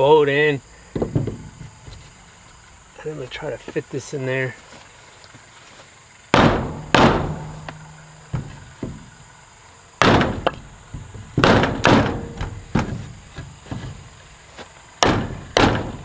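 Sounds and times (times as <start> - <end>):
wooden post being pounded: 6.3 - 9.2, 10.0 - 14.2, 15.0 - 16.0.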